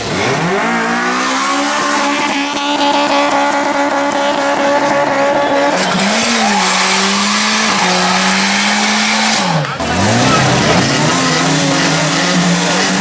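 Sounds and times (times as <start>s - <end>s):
car engine revving high: 0.0s - 13.0s
tyres squealing: 4.6s - 13.0s.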